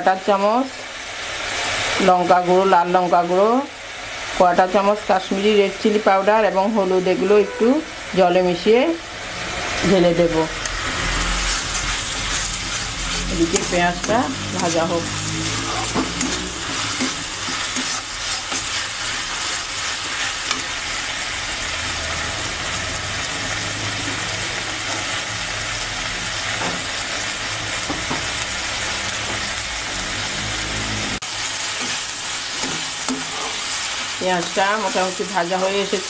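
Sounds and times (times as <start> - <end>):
onion sizzling in hot oil: 0.0 - 36.0
metal spatula scraping pan: 7.1 - 8.0, 10.6 - 20.8.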